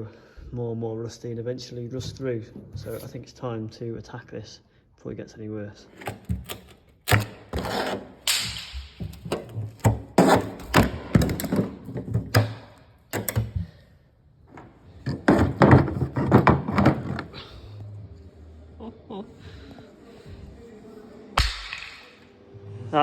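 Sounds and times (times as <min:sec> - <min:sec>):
hand tool scraping metal: 0:07.1 - 0:08.5.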